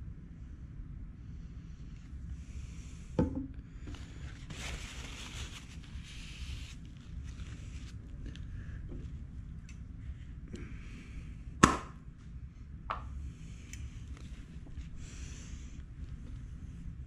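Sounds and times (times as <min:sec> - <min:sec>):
paper napkin rustling: 0:03.9 - 0:08.8.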